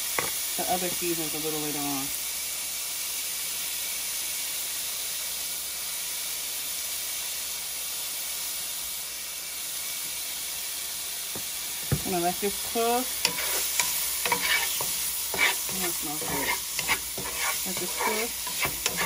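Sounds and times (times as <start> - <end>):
chicken sizzling in a pan: 0.0 - 19.0.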